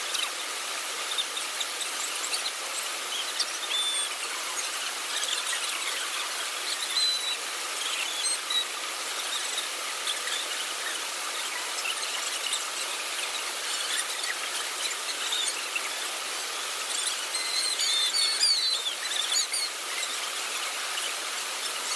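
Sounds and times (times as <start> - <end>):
steady high hiss: 0.0 - 21.9
high squeaky chirps: 16.9 - 19.7.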